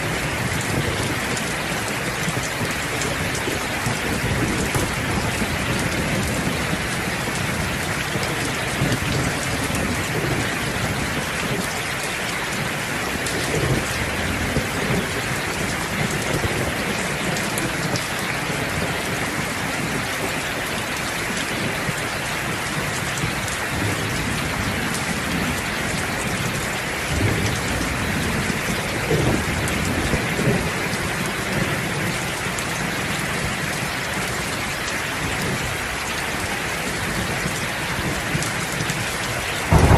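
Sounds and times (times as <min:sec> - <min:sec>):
heavy rainfall: 0:00.0 - 0:39.9
thunder rumbling: 0:00.2 - 0:11.7, 0:21.2 - 0:32.2, 0:36.4 - 0:39.9.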